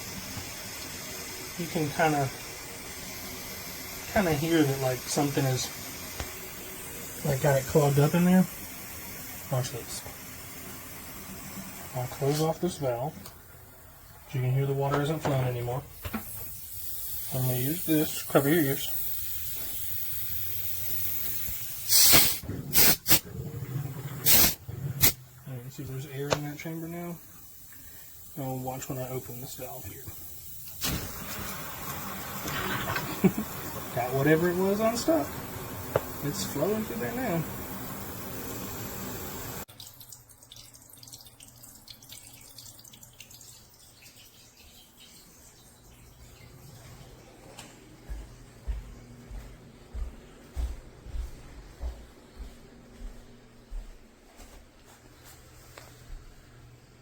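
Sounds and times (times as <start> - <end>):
air bursts hissing: 0.0 - 12.9, 15.8 - 23.3, 24.2 - 25.2, 26.4 - 39.7
water rushing from a heater: 0.0 - 47.6
water trickling: 39.5 - 47.2.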